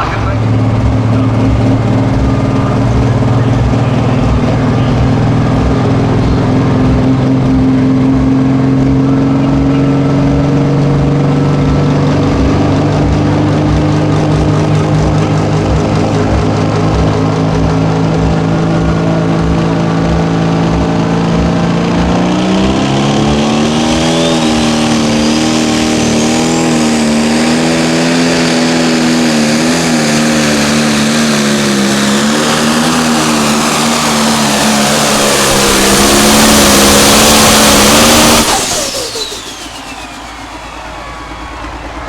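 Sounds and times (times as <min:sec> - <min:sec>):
tractor diesel engine revving: 0:00.0 - 0:42.0
faint high whine: 0:33.3 - 0:42.0.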